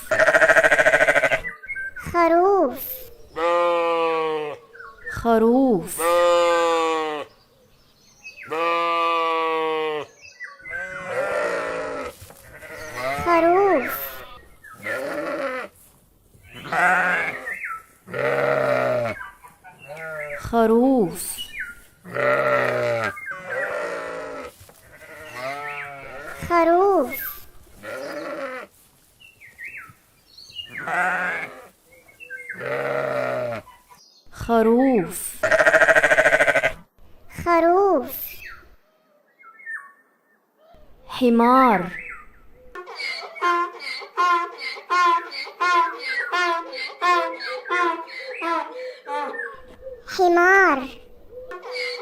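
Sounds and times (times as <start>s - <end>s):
sheep bleating: 0.0s - 1.5s, 3.4s - 4.6s, 6.0s - 7.3s, 8.4s - 15.7s, 16.5s - 19.2s, 19.8s - 20.5s, 22.0s - 26.5s, 27.7s - 28.8s, 30.7s - 31.7s, 32.5s - 33.7s, 35.4s - 36.8s.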